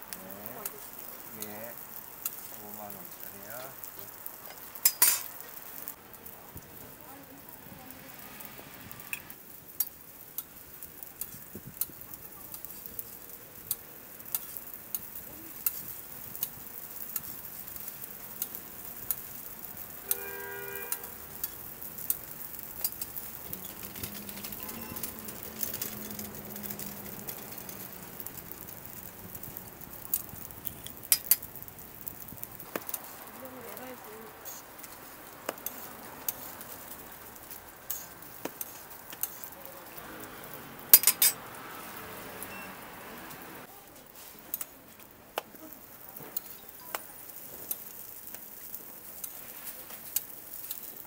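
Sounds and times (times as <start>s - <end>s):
pancakes sizzling on a griddle: 0.0s - 51.0s
metal tongs clicking on griddle: 0.2s - 1.6s, 2.2s - 2.5s, 3.2s - 5.5s, 9.7s - 20.3s, 20.9s - 40.0s, 40.8s - 41.5s, 44.5s - 44.8s, 45.4s - 51.0s.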